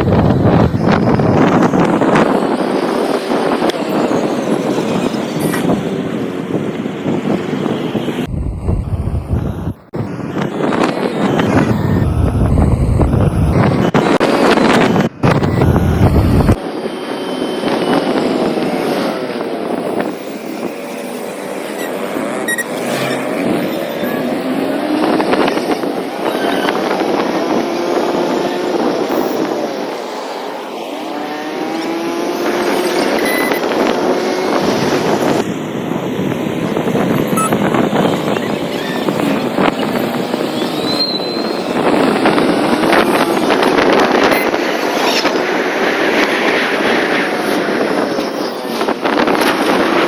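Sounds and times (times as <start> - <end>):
wind buffeting microphone: 0.0 - 20.9, 31.5 - 50.0
vehicle road and engine noise: 0.0 - 50.0.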